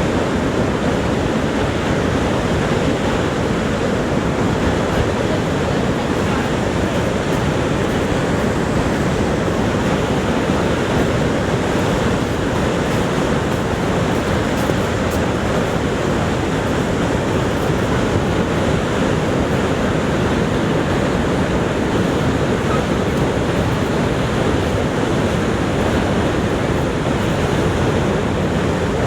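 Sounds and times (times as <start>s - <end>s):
waterfall roaring: 0.0s - 29.0s.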